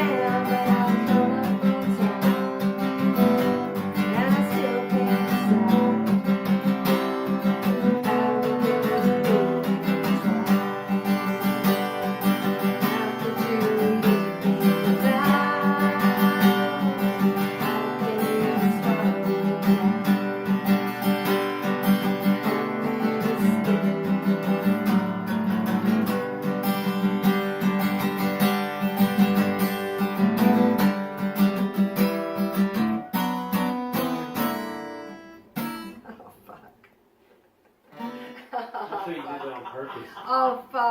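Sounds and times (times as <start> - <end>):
acoustic guitar strummed and picked: 0.0 - 36.7, 37.6 - 40.9.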